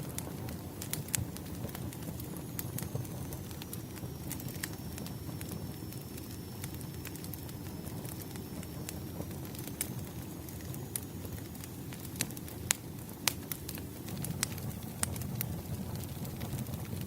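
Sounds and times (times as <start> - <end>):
logs crackling and popping: 0.0 - 17.0
rush of flame: 0.0 - 17.0.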